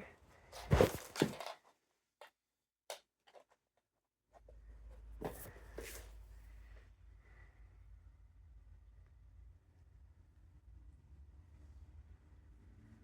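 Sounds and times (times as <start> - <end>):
rustling scrapes: 0.6 - 1.5.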